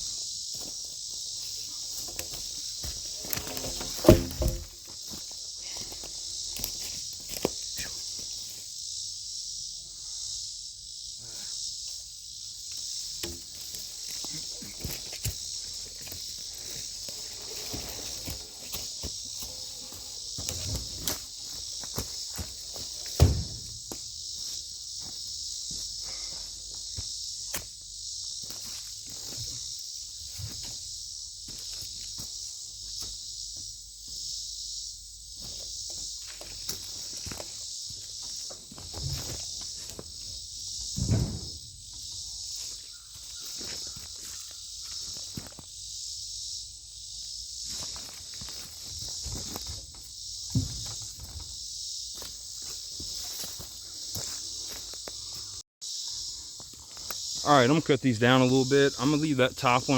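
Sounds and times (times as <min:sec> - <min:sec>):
insect chorus droning: 0:00.0 - 0:59.9
footsteps: 0:01.4 - 0:08.0, 0:13.2 - 0:27.1, 0:52.2 - 0:55.6
faint thuds: 0:02.0 - 0:05.0, 0:23.1 - 0:23.9, 0:40.8 - 0:41.8, 0:50.5 - 0:51.5
heavy thump: 0:03.2 - 0:04.8, 0:23.2 - 0:23.9, 0:40.9 - 0:41.7.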